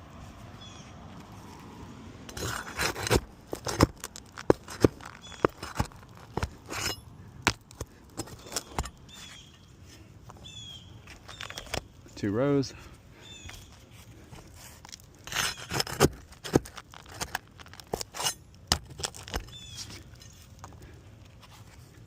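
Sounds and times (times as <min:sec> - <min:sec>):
metal tool scraping shingles: 0:02.3 - 0:09.6, 0:14.4 - 0:20.4.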